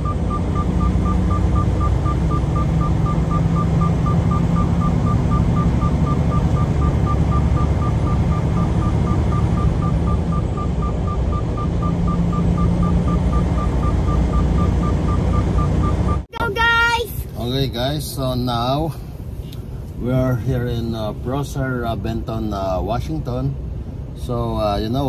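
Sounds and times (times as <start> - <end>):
high electronic beeps: 0.0 - 16.2
truck engine rumble: 0.0 - 25.0.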